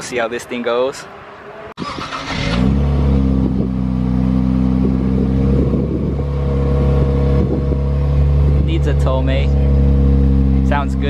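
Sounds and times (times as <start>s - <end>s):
engine starting and idling: 1.8s - 2.9s.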